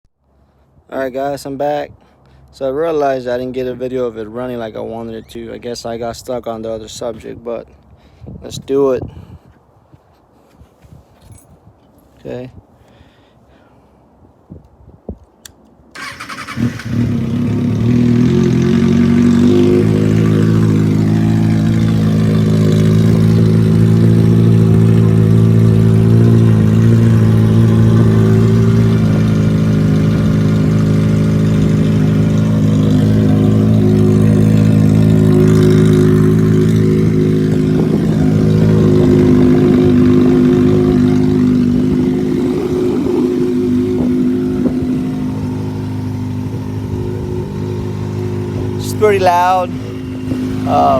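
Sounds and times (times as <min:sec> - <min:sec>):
motorcycle engine cranking: 0:15.5 - 0:45.4
motorcycle engine idling: 0:16.0 - 0:50.9.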